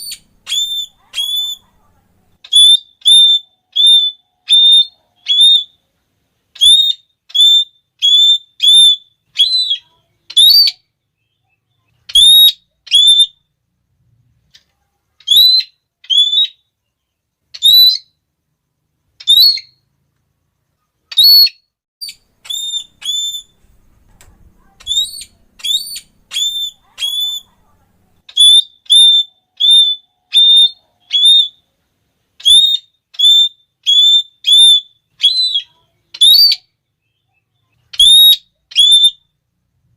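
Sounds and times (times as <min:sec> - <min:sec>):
parrot shrill calls: 0:00.0 - 0:01.7, 0:02.4 - 0:05.8, 0:06.6 - 0:10.9, 0:12.1 - 0:13.4, 0:15.2 - 0:16.7, 0:17.5 - 0:18.2, 0:19.2 - 0:19.8, 0:21.1 - 0:23.8, 0:24.6 - 0:27.7, 0:28.3 - 0:31.7, 0:32.4 - 0:36.8, 0:37.9 - 0:39.3.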